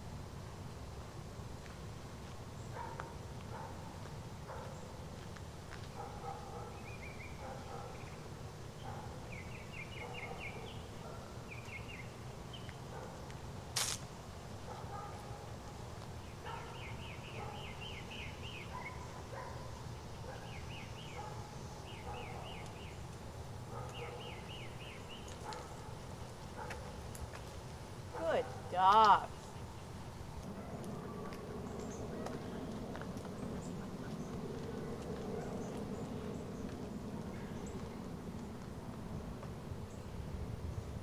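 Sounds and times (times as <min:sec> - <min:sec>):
bird chirping: 0:08.8 - 0:12.8, 0:16.2 - 0:23.0, 0:23.7 - 0:26.0.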